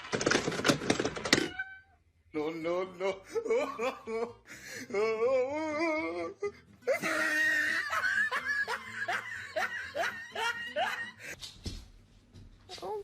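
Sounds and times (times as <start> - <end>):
person laughing: 3.0 - 11.3.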